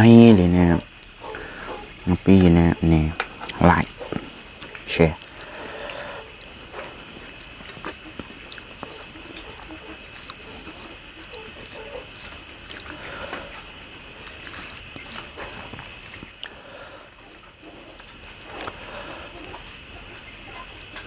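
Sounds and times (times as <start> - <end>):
person chewing food: 0.9 - 21.0.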